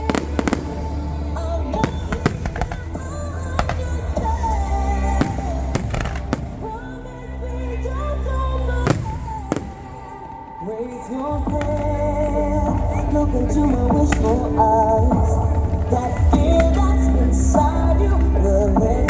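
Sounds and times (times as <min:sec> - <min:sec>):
fireworks bangs: 0:00.0 - 0:07.1, 0:08.9 - 0:11.8
song with heavy bass beat: 0:00.0 - 0:07.2.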